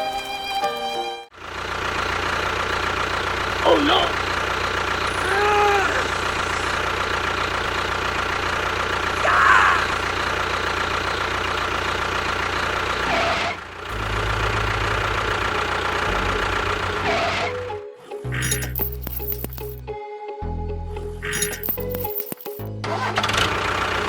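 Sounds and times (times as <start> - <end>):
engine humming: 1.4 - 19.8.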